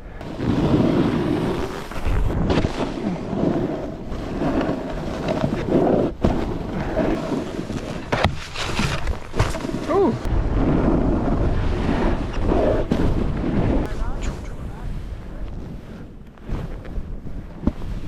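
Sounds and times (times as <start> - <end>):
snowboard carving over snow: 0.1 - 18.0
wind buffeting microphone: 8.8 - 18.0.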